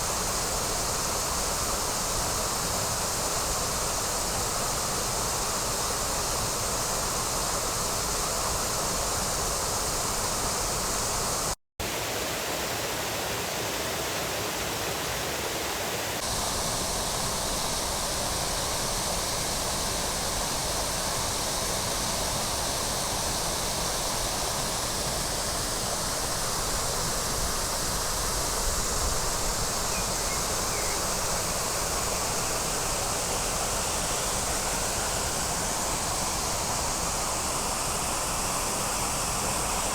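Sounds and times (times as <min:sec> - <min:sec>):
waterfall roaring: 0:12.2 - 0:39.9.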